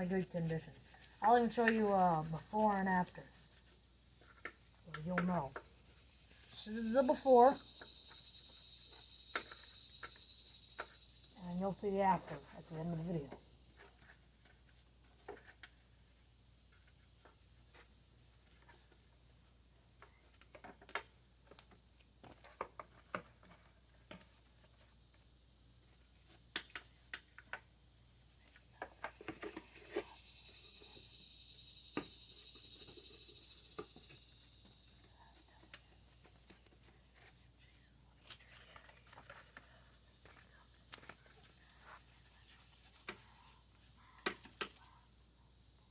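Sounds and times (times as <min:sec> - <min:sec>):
soft hiss: 0:00.0 - 0:45.9.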